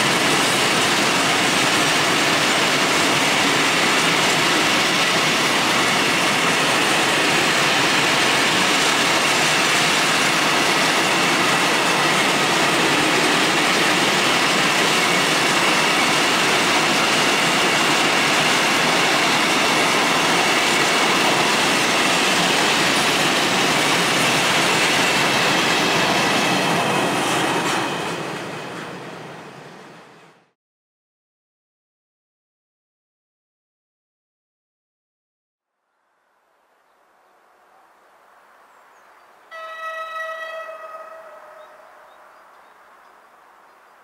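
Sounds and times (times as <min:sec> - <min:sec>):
freight train wheels rumbling: 0:00.0 - 0:30.6.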